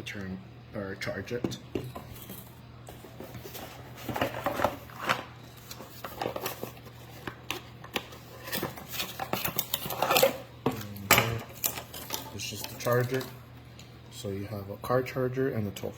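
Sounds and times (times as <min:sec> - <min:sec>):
packaging rustling: 0:02.2 - 0:13.4.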